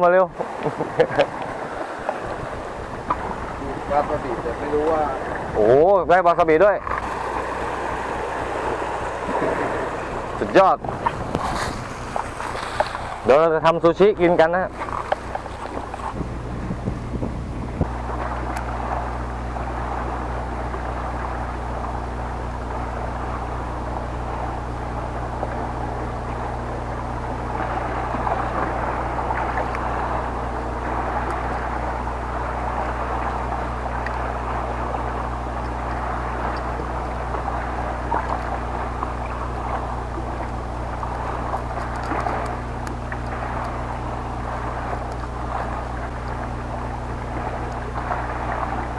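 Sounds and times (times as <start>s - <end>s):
boat engine droning: 0.0s - 48.9s
water noise: 0.0s - 48.9s
wind noise: 0.8s - 5.8s, 6.9s - 13.3s, 14.7s - 22.3s.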